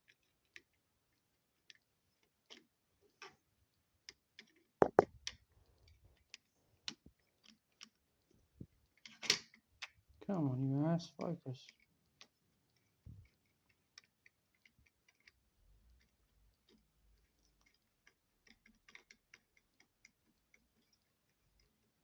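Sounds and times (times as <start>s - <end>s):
soft thump: 4.8s - 5.1s.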